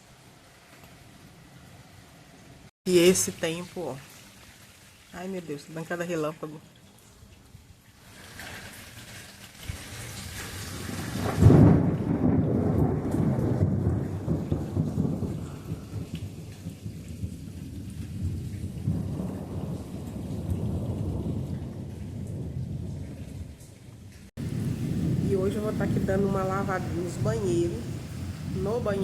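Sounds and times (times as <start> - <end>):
steady rain falling: 0.0 - 29.0
thunder rumbling: 9.7 - 29.0.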